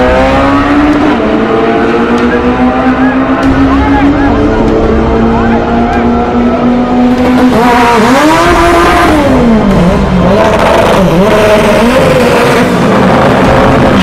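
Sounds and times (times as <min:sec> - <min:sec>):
drag car engine revving: 0:00.0 - 0:14.0.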